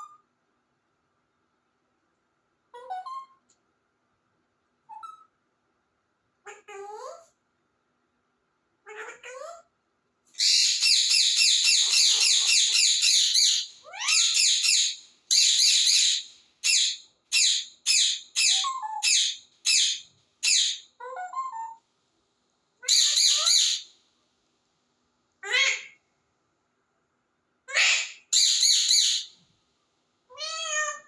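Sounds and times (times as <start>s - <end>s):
parrot chattering harshly: 10.4s - 21.3s, 22.8s - 23.8s.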